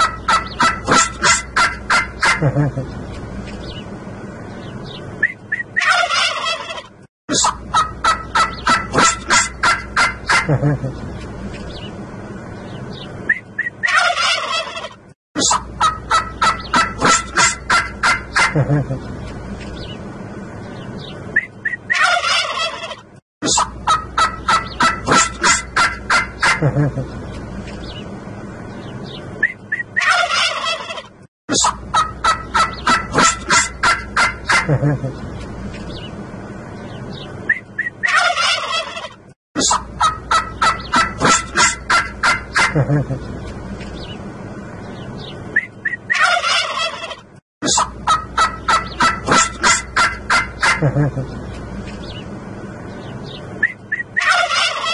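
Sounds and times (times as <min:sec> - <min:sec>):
turkeys gobbling: 0:00.0 - 0:02.9, 0:05.2 - 0:11.0, 0:13.3 - 0:19.1, 0:21.4 - 0:27.1, 0:29.4 - 0:35.3, 0:37.5 - 0:43.3, 0:45.6 - 0:51.3, 0:53.6 - 0:54.9.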